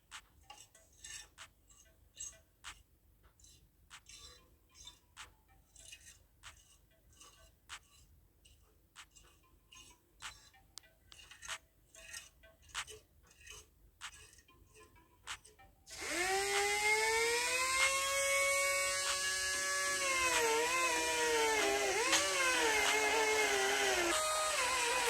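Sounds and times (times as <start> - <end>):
small parts clicking and tapping: 15.2 - 25.0
power tool motor whining: 15.9 - 25.0.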